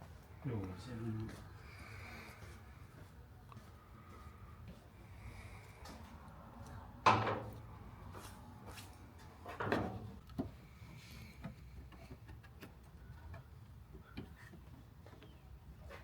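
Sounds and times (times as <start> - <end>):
sharp knocks with rattle: 7.1 - 7.5.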